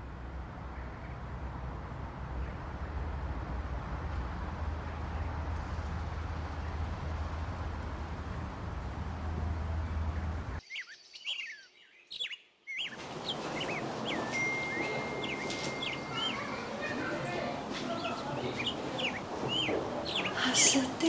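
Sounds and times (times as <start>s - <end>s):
street noise: 0.0s - 10.6s, 12.8s - 21.0s
small birds chirping: 10.1s - 21.0s.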